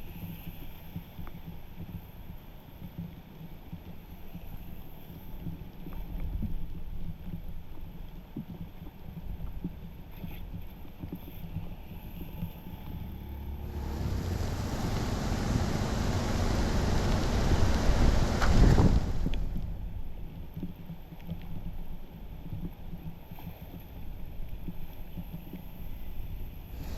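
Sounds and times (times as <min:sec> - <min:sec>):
low rumbling water: 0:13.4 - 0:20.2, 0:26.7 - 0:26.9
water rushing through drain: 0:13.5 - 0:19.8.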